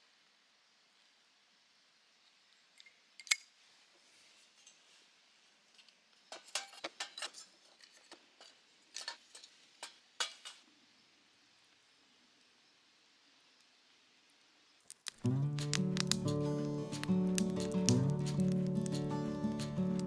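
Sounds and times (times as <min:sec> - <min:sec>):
small hard objects clicking: 0:14.9 - 0:20.0.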